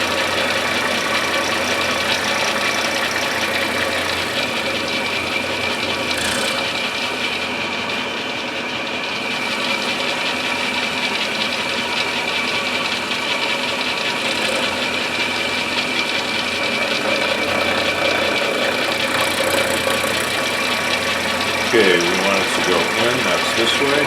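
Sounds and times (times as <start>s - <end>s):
end mill cutting wood chatter: 0.0s - 24.0s
milling machine whine: 0.0s - 24.0s.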